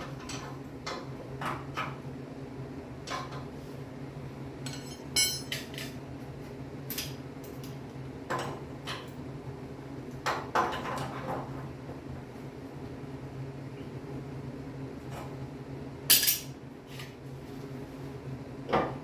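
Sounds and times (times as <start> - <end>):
metal tools clinking: 4.7 - 6.0.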